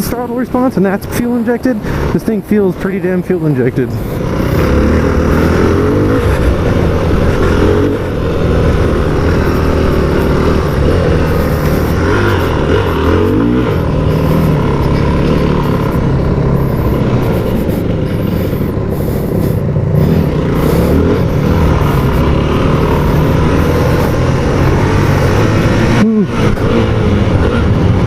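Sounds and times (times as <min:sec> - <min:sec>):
motorcycle engine under throttle: 0:01.2 - 0:28.0.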